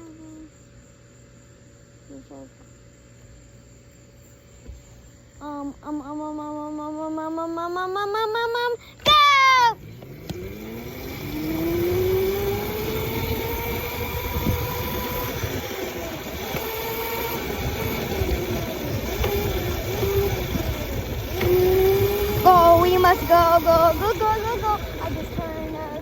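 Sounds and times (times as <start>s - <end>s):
motorbike motor whining: 8.0s - 26.0s.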